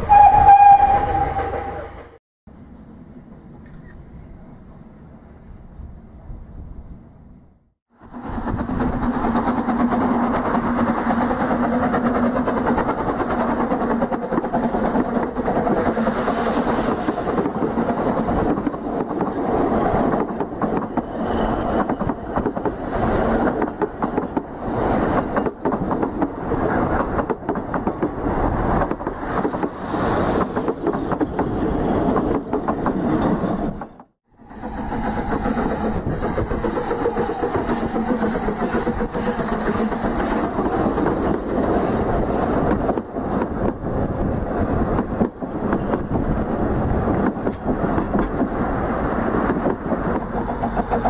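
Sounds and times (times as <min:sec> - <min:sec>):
train wheels clattering over rails: 0:08.1 - 0:51.0.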